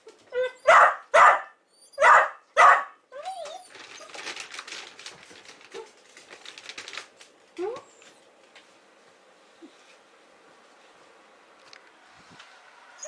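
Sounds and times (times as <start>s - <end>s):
dog whining: 0.0s - 0.8s, 1.7s - 2.2s, 3.1s - 4.4s
dog barking: 0.6s - 3.0s.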